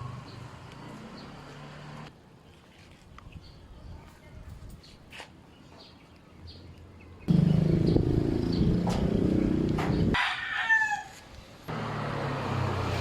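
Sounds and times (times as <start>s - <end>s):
loud low motor running: 7.3s - 10.1s
rooster crowing: 10.2s - 11.2s.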